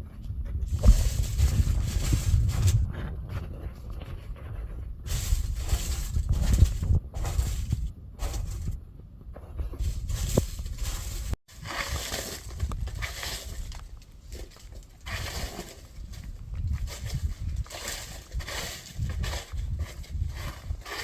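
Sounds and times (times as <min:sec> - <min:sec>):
dry leaves rustling and crackling: 0:09.8 - 0:20.1.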